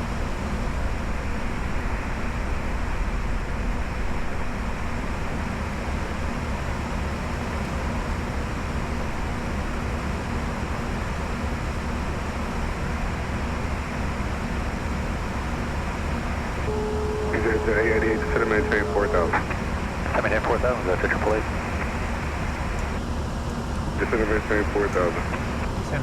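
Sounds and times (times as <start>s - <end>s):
deep hum: 16.6s - 23.0s.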